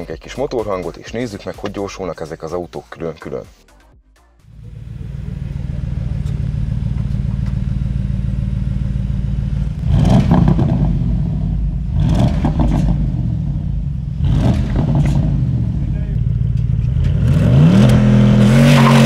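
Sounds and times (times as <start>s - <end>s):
car engine idling: 4.5s - 19.0s
car engine revving: 4.5s - 19.0s.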